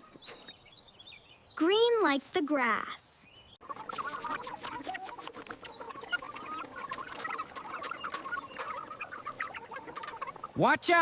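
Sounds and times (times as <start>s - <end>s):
chicks peeping: 3.3s - 10.6s
chickens clucking: 3.6s - 10.8s.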